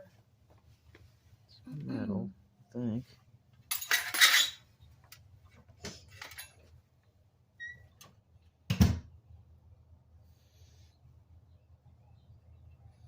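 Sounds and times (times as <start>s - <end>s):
objects clattering: 3.7s - 6.8s.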